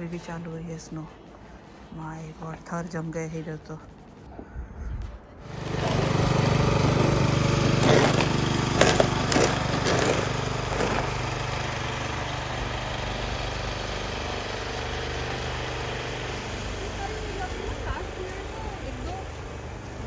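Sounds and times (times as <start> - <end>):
engine starting and running: 5.4 - 20.0.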